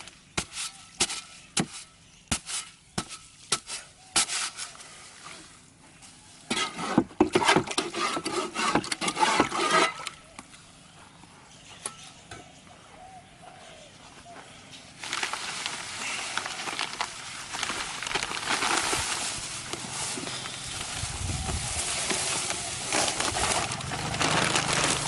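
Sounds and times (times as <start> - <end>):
gritty scraping and rattling: 6.0 - 10.3, 14.8 - 25.0.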